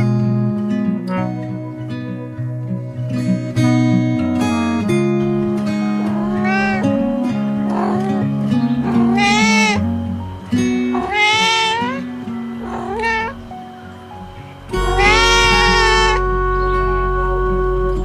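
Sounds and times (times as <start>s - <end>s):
light background music: 0.0s - 18.0s
cat meowing: 6.0s - 9.9s, 10.9s - 12.0s, 12.6s - 13.4s, 14.7s - 16.3s.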